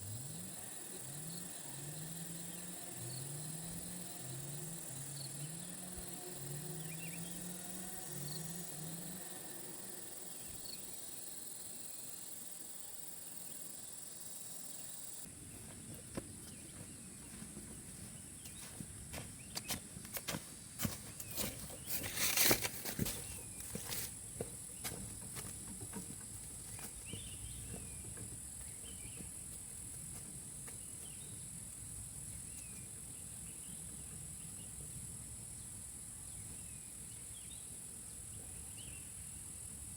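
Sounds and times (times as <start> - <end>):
crickets chirring: 0.0 - 15.3.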